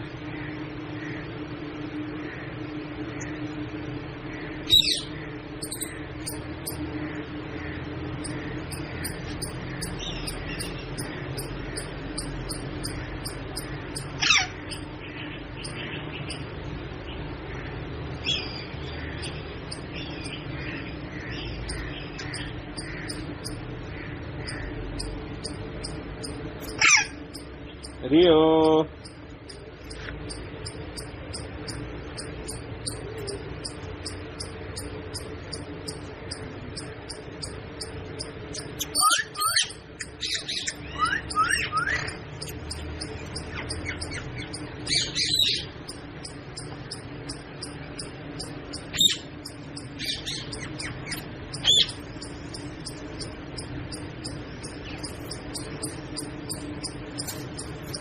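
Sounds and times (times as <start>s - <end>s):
faint high chirps: 4.6s - 6.9s, 8.2s - 16.5s, 24.4s - 58.0s
parrot squawking: 4.6s - 6.9s, 7.6s - 15.0s, 21.2s - 28.0s, 28.9s - 58.0s.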